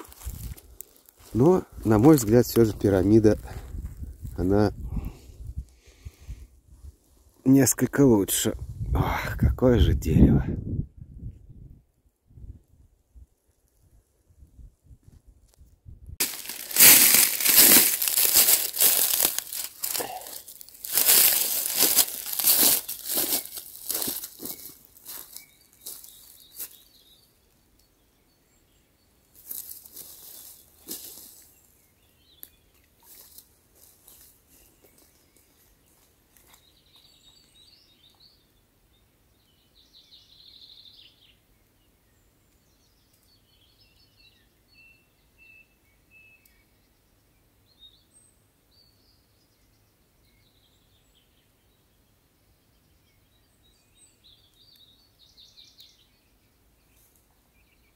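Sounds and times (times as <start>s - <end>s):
sharp rustles: 16.2s - 25.2s
small birds chirping: 16.3s - 57.9s.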